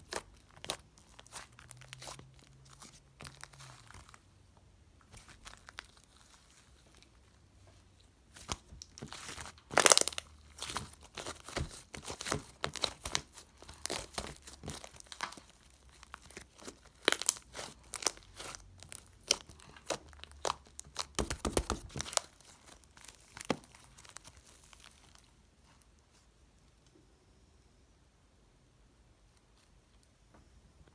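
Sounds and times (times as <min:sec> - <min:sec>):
slime crackling and popping: 0:00.0 - 0:04.2, 0:08.3 - 0:25.3.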